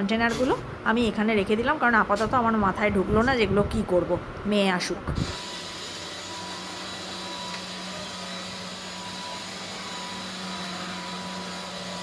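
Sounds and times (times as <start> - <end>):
electric motor whirring: 5.2 - 12.0.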